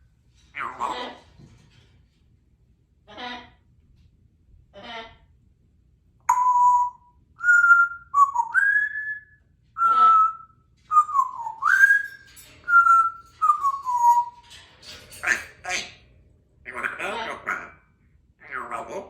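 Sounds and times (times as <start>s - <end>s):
parrot raspy sound: 0.5s - 1.3s
parrot whistling: 6.3s - 14.5s.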